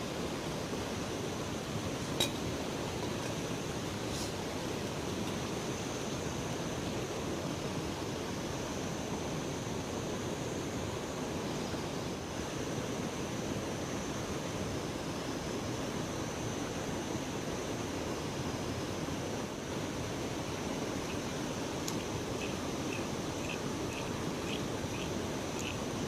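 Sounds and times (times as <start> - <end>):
river water rushing: 18.2 - 26.0.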